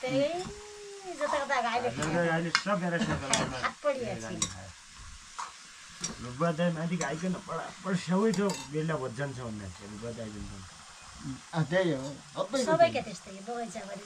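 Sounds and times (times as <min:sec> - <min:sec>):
voices talking: 0:00.0 - 0:04.7, 0:06.1 - 0:14.0
chicken sizzling in a wok: 0:00.0 - 0:14.0.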